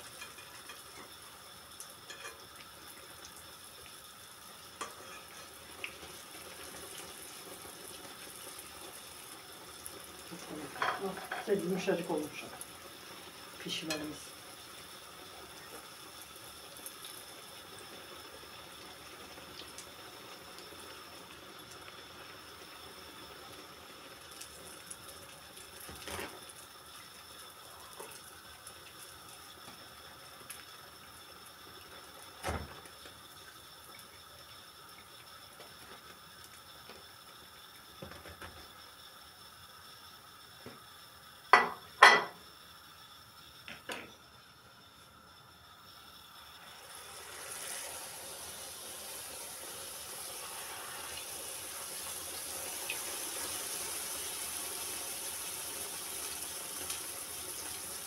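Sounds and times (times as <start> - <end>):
dough sizzling in hot oil: 0.0 - 58.0
utensil knocking against pan: 41.6 - 42.4.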